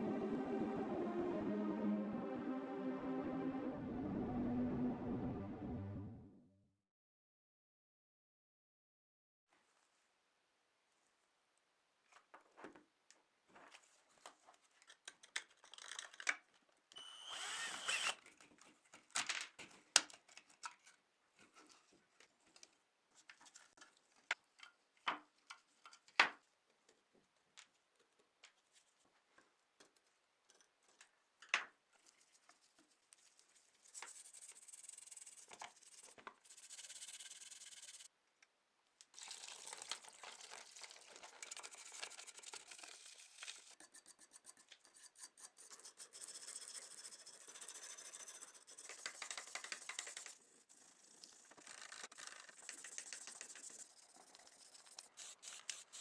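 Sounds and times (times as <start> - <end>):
scratchy rubbing: 33.6 - 38.1, 41.9 - 56.0.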